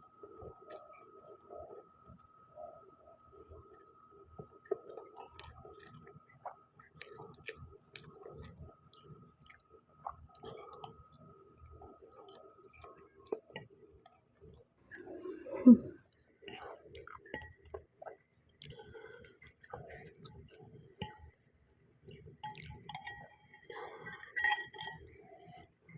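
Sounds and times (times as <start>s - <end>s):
close chewing with mouth clicks: 3.5s - 14.7s, 15.9s - 21.3s, 22.0s - 24.3s.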